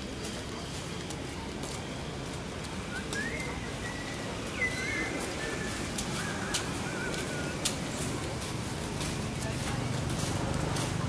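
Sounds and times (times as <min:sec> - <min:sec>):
outdoor background noise: 0:00.0 - 0:11.0
bird calling with whistled notes: 0:02.8 - 0:07.8.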